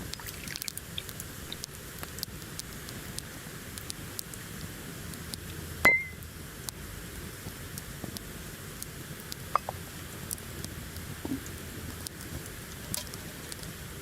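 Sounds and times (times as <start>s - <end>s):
campfire crackling: 0.0s - 14.0s
glass clinking: 5.9s - 6.2s.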